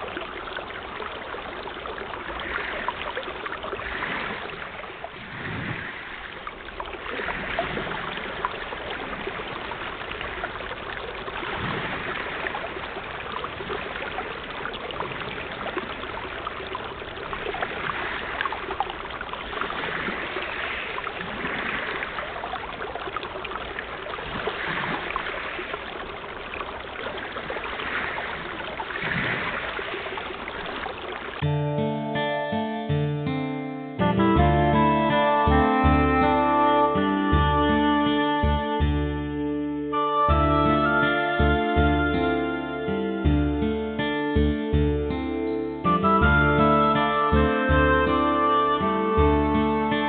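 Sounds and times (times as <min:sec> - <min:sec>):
sea water washing and splashing: 0:00.0 - 0:31.4.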